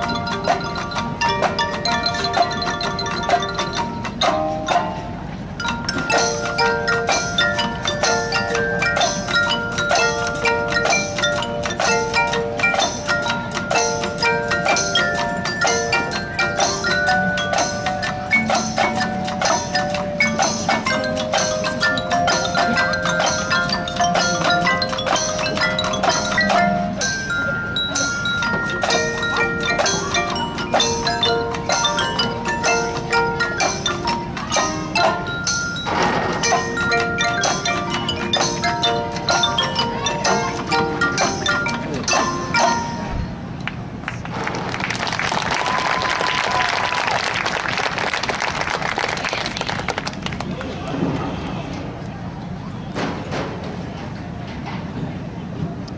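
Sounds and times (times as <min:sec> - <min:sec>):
marimba and bell notes: 0:00.0 - 0:44.0
marching band music: 0:00.0 - 0:50.1.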